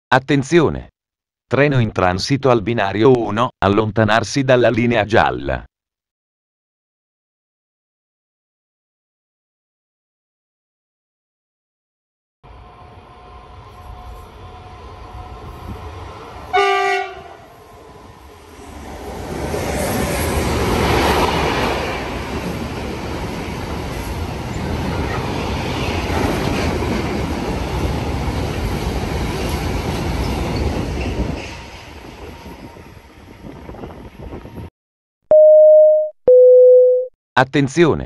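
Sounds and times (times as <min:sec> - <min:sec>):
train rushing rumble: 0:12.5 - 0:34.7
train horn blast: 0:16.5 - 0:17.5.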